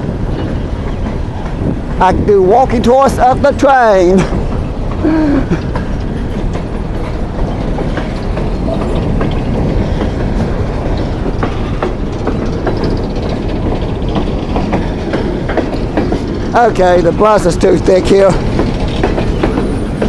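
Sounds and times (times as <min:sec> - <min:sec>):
train cars rumbling: 0:00.0 - 0:20.0
wheel clicks and clatter: 0:05.6 - 0:20.0.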